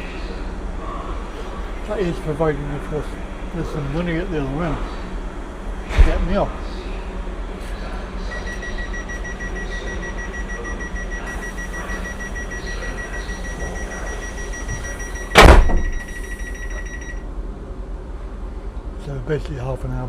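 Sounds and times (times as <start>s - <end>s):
low hum of train: 0.0s - 20.0s
loud thud: 15.3s - 16.1s.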